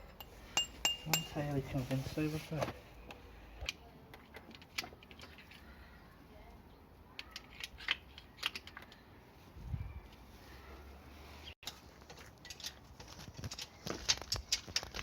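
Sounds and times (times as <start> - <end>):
tools and metal parts clicking: 11.6 - 15.0.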